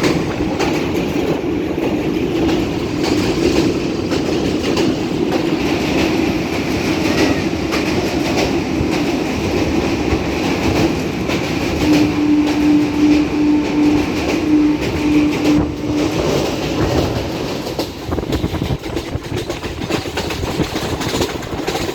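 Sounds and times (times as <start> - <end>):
train rumbling: 0.0 - 21.9
wheels clattering on rails: 0.0 - 21.9
pulsing steady tone: 11.8 - 16.5.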